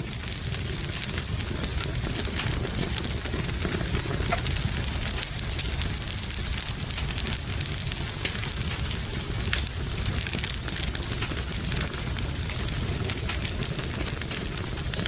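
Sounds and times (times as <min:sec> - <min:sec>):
rain hiss: 0:00.0 - 0:15.0
wood fire crackling: 0:00.0 - 0:15.0.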